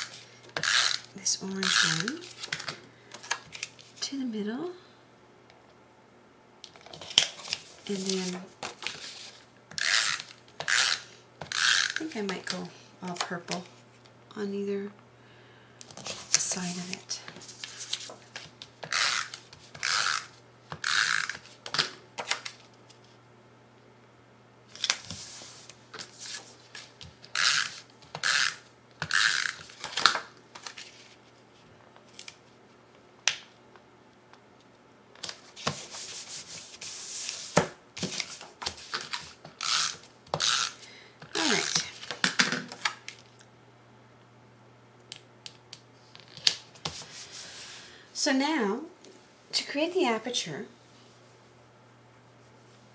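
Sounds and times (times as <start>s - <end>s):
paper rustling and rubbing: 6.9s - 10.3s, 16.0s - 19.9s, 24.8s - 27.9s, 35.4s - 39.4s, 46.2s - 47.9s.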